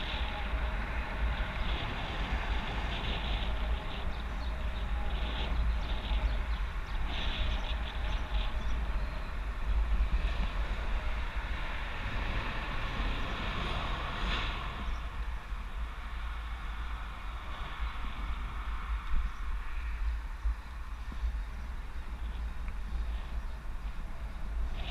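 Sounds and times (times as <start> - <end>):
wind buffeting microphone: 0.0 - 24.9.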